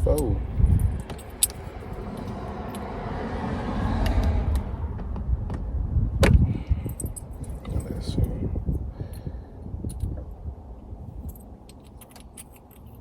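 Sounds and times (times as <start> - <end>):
vehicle passing by: 0.5 - 6.7.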